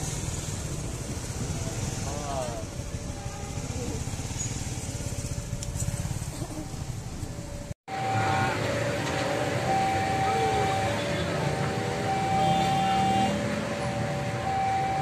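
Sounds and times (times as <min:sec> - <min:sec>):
street noise: 0:00.0 - 0:15.0
high tone sounding: 0:07.9 - 0:15.0.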